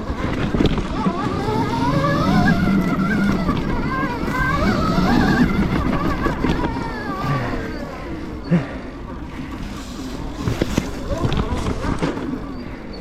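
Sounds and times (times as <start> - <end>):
electric motor whining: 0.0 - 8.4
tyre noise: 0.0 - 8.8.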